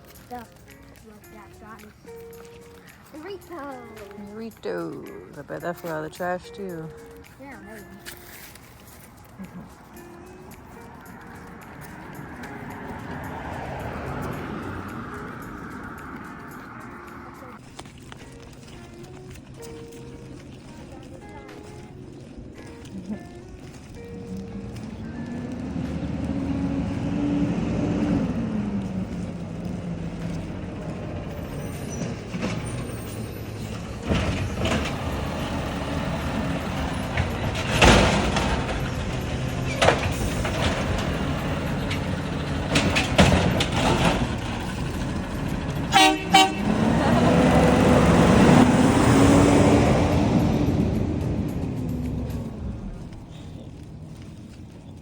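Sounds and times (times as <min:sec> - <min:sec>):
garbage truck engine revving: 0:25.2 - 0:53.4
loud metal clanks and knocks: 0:36.8 - 0:45.8
horn toots: 0:42.8 - 0:50.4.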